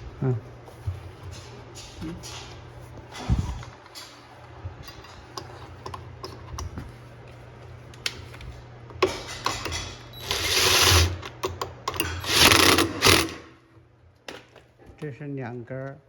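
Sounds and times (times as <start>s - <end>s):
parts scraping: 9.1s - 11.3s, 12.0s - 13.5s.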